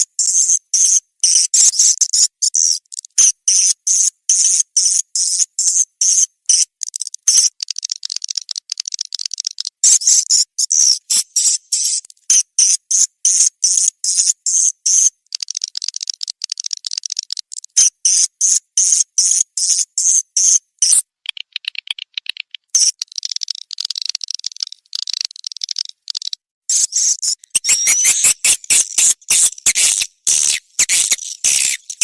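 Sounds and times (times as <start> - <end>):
swiftlets chirping: 10.9 - 12.0, 20.8 - 32.0
lower warbling twitter: 27.5 - 32.0.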